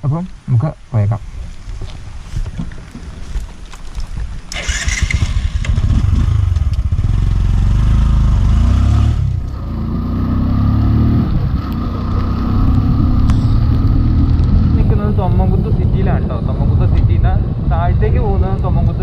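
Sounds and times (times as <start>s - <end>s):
motorbike engine accelerating: 4.5s - 15.5s.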